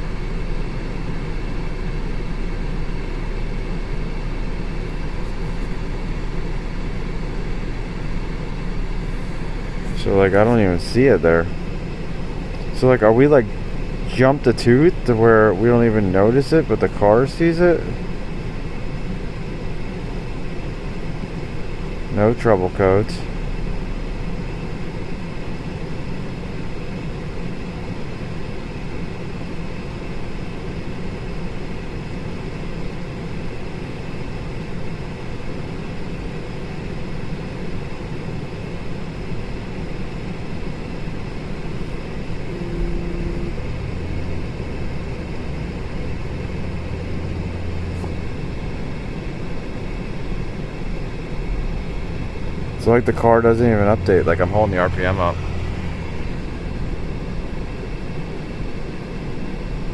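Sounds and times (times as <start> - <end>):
car engine running: 0.0 - 59.9.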